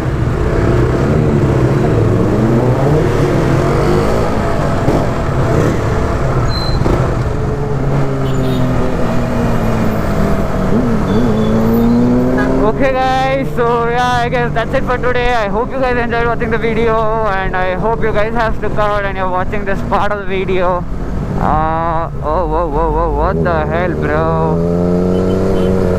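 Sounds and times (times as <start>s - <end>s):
motorcycle engines revving: 0.0s - 25.9s.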